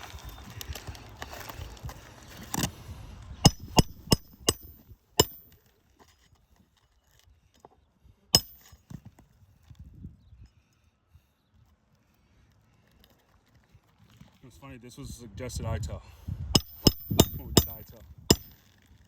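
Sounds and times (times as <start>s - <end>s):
shingles rustling and scraping: 0.0s - 3.0s
hammer striking nails: 3.5s - 5.4s, 8.4s - 8.7s, 16.6s - 18.6s.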